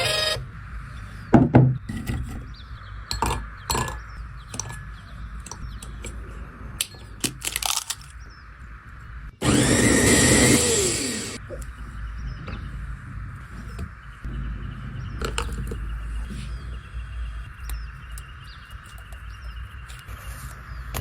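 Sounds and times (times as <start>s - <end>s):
electric kitchen blender running: 9.4s - 11.4s.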